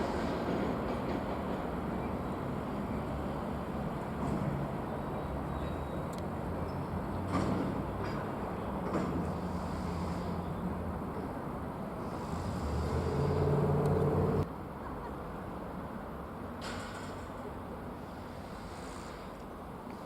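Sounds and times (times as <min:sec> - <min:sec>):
train rumbling: 0:00.0 - 0:15.1.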